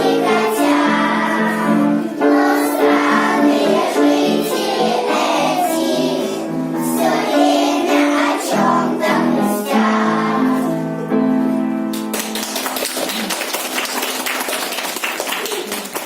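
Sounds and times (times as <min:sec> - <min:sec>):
children singing: 0:00.0 - 0:10.8.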